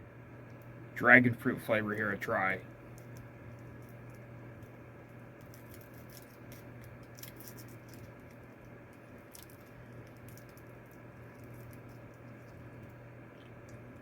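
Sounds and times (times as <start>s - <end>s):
steady low hum: 0.0s - 14.0s
candy being chewed: 2.9s - 14.0s.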